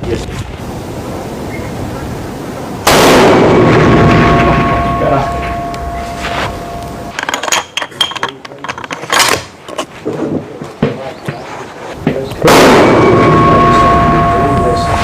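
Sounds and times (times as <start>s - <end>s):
steady rushing noise with tones: 0.1s - 7.2s, 12.5s - 15.0s
loud rifle crack: 2.8s - 7.1s, 12.4s - 15.0s
rifle handling clicks and knocks: 7.1s - 9.9s.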